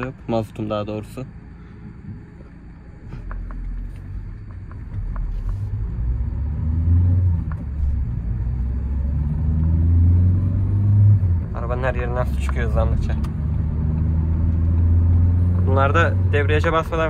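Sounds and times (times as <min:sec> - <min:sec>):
diesel van engine rumble: 0:00.0 - 0:17.0.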